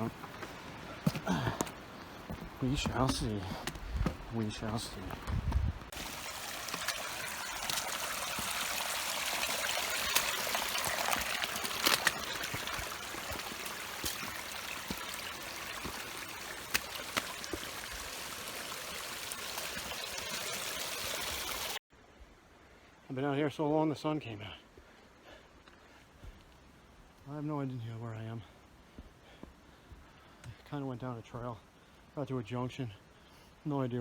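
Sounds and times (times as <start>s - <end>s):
stream rushing: 4.0s - 21.8s.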